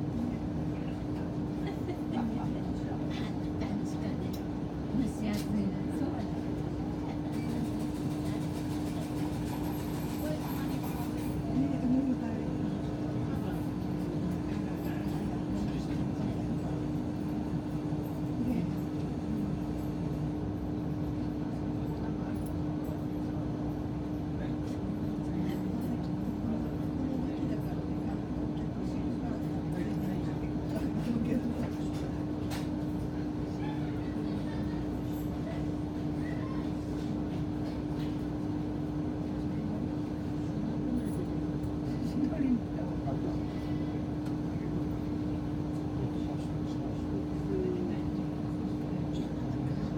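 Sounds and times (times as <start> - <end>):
railcar interior low rumble: 0.0 - 49.9.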